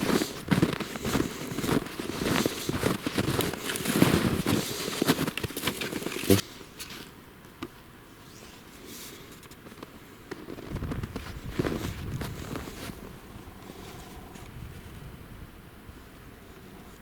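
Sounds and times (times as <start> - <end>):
footsteps crunching through undergrowth: 0.0 - 7.1.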